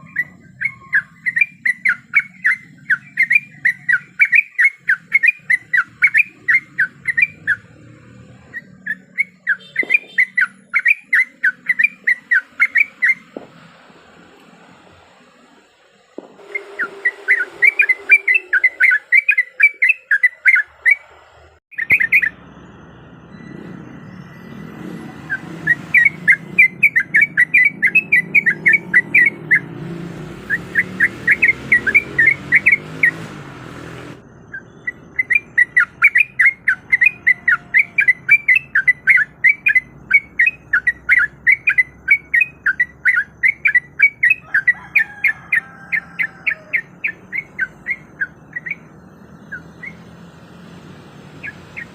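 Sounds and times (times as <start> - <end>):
bird chattering calls: 0.0 - 7.8, 8.4 - 13.4, 16.4 - 22.4, 25.2 - 29.7, 34.4 - 50.1.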